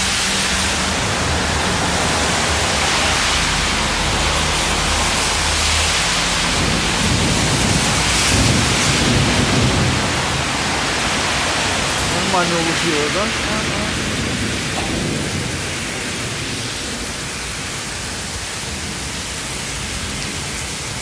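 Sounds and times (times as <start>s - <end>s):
heavy rain rushing: 0.0s - 21.0s
deep rumble: 13.3s - 17.4s.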